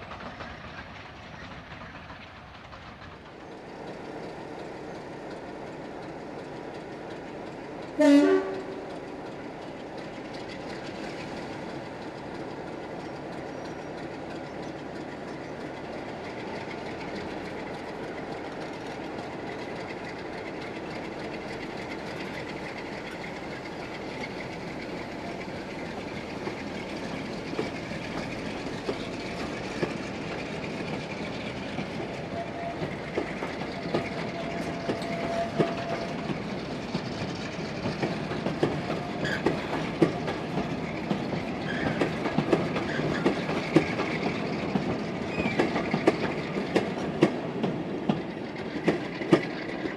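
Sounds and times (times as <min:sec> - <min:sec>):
train rumbling on rails: 0:00.0 - 0:49.9.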